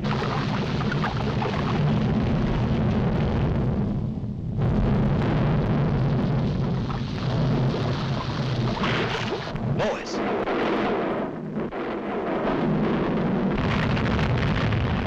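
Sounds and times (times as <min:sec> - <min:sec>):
cartoon volcano rumbling: 0:00.0 - 0:15.0
explosive blasts: 0:04.6 - 0:15.0.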